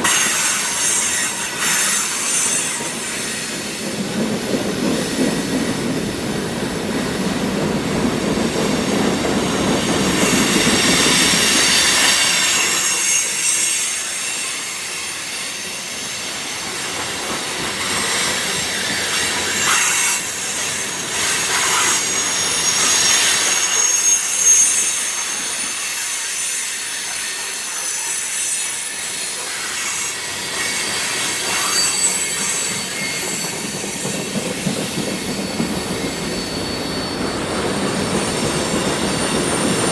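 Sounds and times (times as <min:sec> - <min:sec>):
heavy low train rumble: 0:00.0 - 0:26.4, 0:30.2 - 0:39.9
train wheels squealing: 0:00.0 - 0:39.9.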